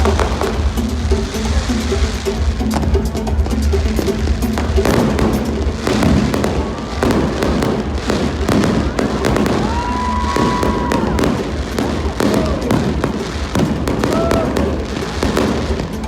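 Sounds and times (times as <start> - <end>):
fireworks bangs and crackles: 0.0 - 16.0
music with low bass: 0.0 - 16.0.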